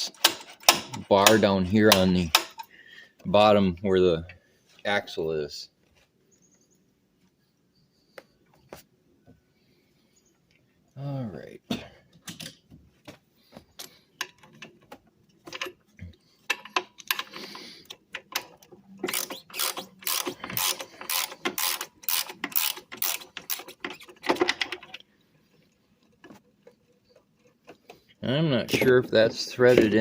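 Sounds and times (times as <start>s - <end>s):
socket ratchet clicking: 18.2s - 24.3s.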